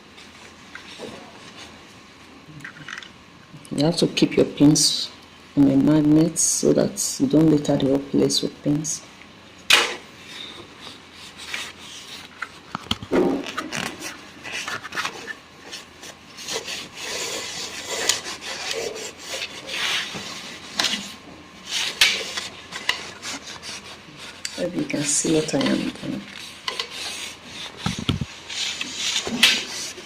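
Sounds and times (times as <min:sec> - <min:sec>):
cloth rubbing on sewing machine: 0:15.3 - 0:30.0.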